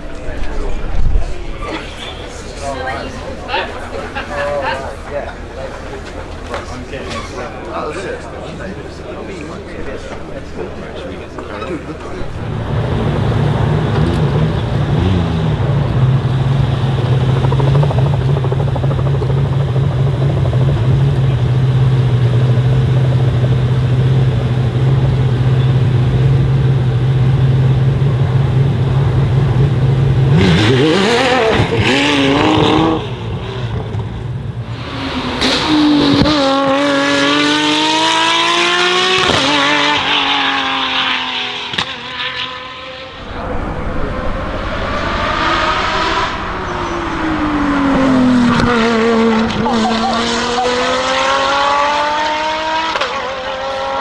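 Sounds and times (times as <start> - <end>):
car accelerating hard: 11.8 - 54.0
car engine idling and revving: 11.9 - 54.0.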